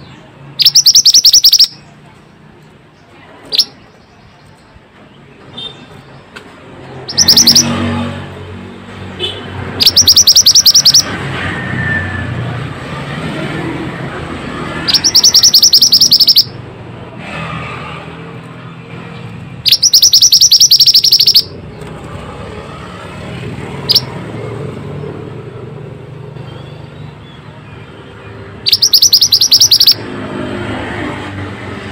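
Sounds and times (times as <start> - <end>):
bird trills: 0.6 - 1.9, 7.1 - 7.8, 9.8 - 11.1, 14.8 - 16.5, 19.6 - 21.6, 23.8 - 24.1, 28.6 - 30.0.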